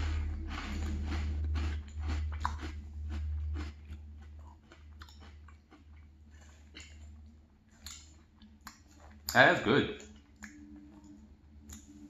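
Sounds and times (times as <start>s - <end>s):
chewing crunchy cereal: 0.0s - 12.0s.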